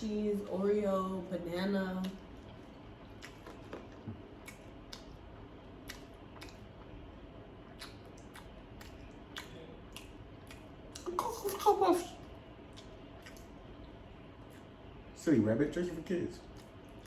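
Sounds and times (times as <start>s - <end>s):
low room noise: 0.0s - 17.0s
chewing clicks and smacks: 2.0s - 11.6s, 12.2s - 14.8s, 16.4s - 17.0s.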